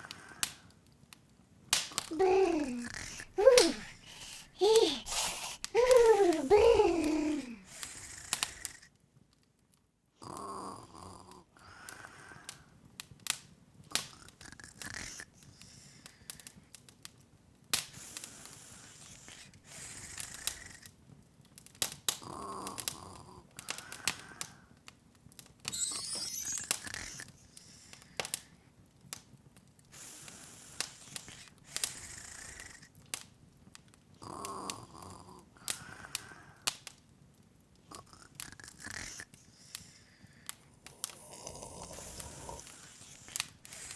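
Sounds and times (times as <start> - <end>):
wood fire crackling and popping: 0.0 - 4.2, 5.6 - 9.9, 12.5 - 32.0, 32.6 - 34.8, 35.7 - 43.9
soft snore-like sound: 2.1 - 8.9, 10.2 - 12.6, 18.2 - 20.9, 25.7 - 28.4, 30.0 - 32.9, 34.2 - 36.6, 37.9 - 43.9
rising sparkly chime: 25.7 - 27.2.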